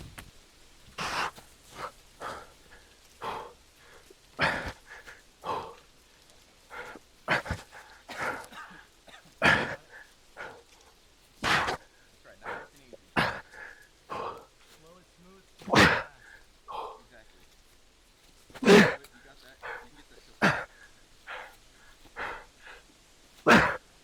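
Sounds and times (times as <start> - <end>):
person breathing hard: 0.9 - 24.0.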